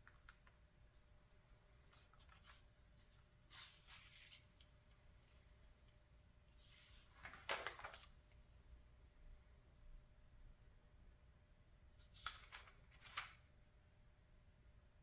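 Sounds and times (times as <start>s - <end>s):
paper pages rustling: 0.0s - 1.1s, 1.7s - 8.4s, 12.0s - 13.4s
page turning swish: 6.6s - 8.2s
crisp paper snap: 12.0s - 13.4s.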